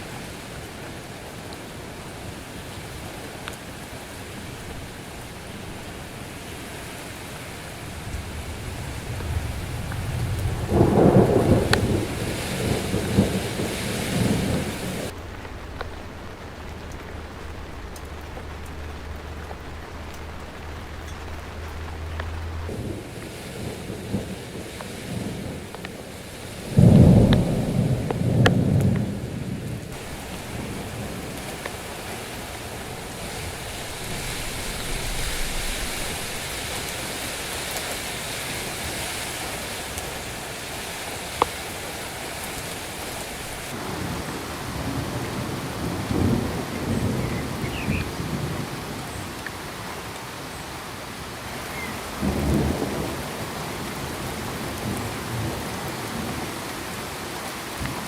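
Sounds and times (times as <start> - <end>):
steady rain: 0.0 - 58.0
thunder rolling: 7.8 - 37.5.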